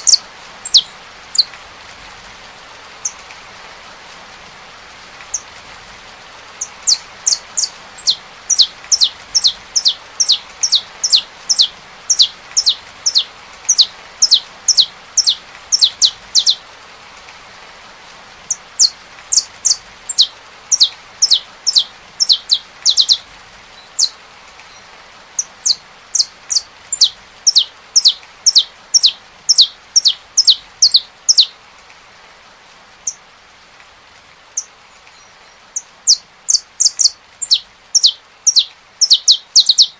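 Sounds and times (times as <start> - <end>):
finch singing: 0.0 - 1.5, 6.6 - 16.6, 18.5 - 23.2, 23.8 - 31.6, 34.6 - 39.9
rain hissing: 0.0 - 39.9.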